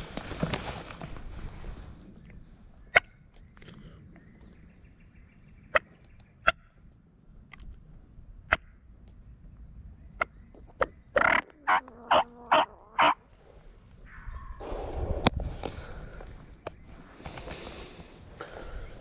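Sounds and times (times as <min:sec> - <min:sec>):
scratchy turkey yelps: 0:11.2 - 0:13.2.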